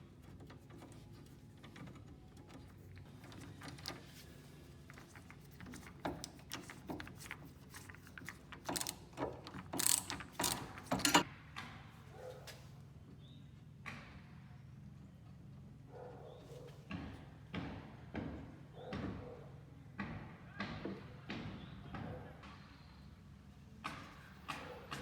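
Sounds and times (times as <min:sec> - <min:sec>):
metal mechanism clicking and ratcheting: 0:07.8 - 0:11.2.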